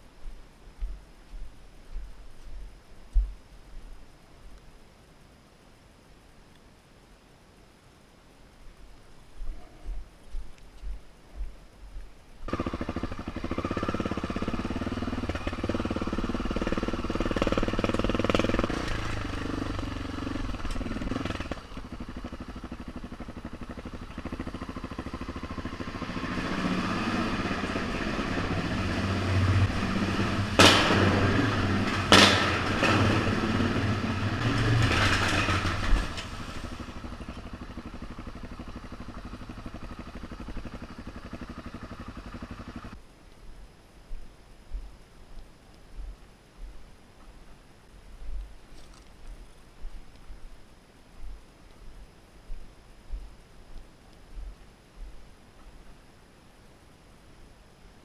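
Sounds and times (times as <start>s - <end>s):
motorcycle engine running: 12.4s - 43.0s.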